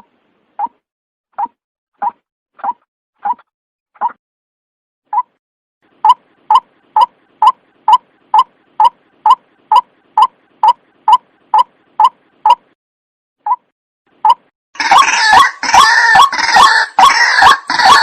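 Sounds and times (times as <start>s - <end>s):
waterhen calling: 14.8s - 18.0s.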